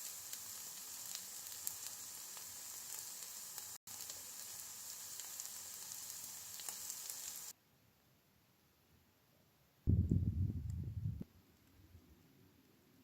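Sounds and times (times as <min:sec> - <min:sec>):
food sizzling in a frying pan: 0:00.0 - 0:07.6.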